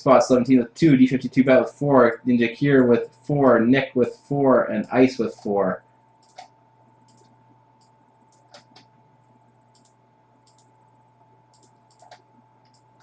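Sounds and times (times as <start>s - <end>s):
low electrical hum: 0.0s - 13.0s
mouse and keyboard clicks: 6.2s - 6.5s, 7.1s - 8.9s, 11.5s - 13.0s.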